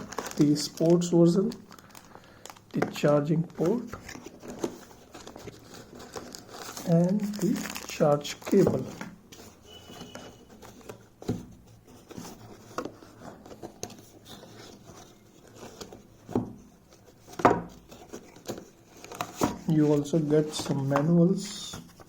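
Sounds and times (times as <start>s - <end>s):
cardboard box being handled: 3.5s - 21.1s.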